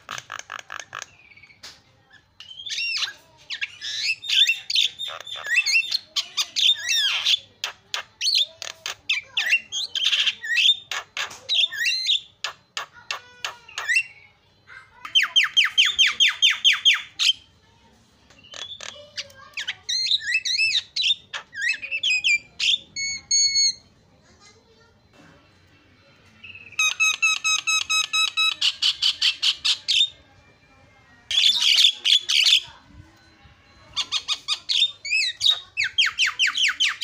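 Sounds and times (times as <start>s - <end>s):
myna chattering song: 18.2s - 37.0s.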